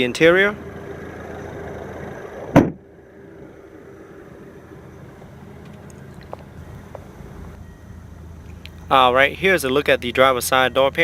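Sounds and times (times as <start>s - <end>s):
car engine idling: 0.0s - 11.0s
engine switch-off thump: 2.4s - 2.9s.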